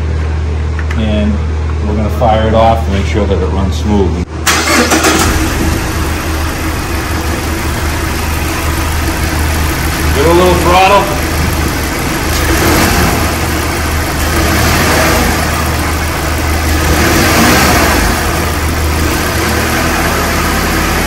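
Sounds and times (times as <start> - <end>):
car engine revving: 4.5 - 21.0.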